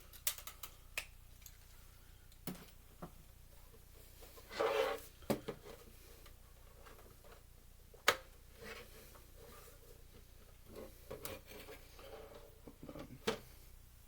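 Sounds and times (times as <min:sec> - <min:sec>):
clicks and knocks of plastic parts: 0:00.1 - 0:01.6.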